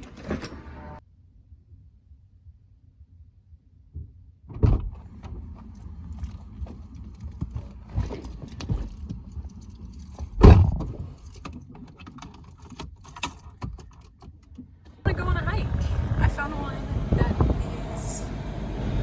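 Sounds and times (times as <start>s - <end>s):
handling clicks and clinks: 5.5s - 14.7s
low rumble: 15.0s - 19.0s.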